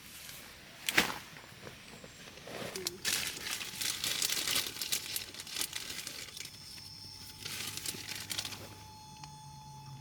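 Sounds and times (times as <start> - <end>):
soft material crinkling: 2.0 - 9.4.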